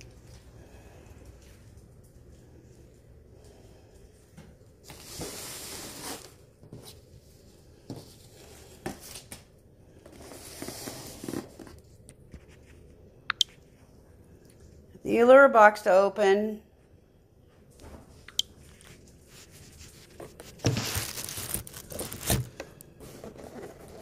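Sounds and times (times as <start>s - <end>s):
rustling: 18.6s - 24.0s.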